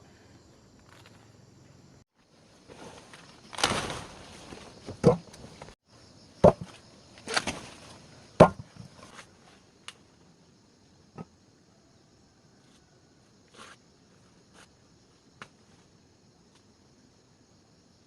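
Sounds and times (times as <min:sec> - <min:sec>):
rustling scraping noises: 0:02.5 - 0:05.8.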